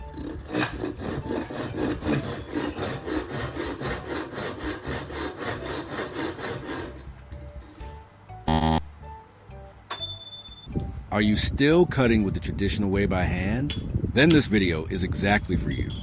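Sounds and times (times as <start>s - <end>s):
hand saw cutting wood: 0.0s - 8.0s.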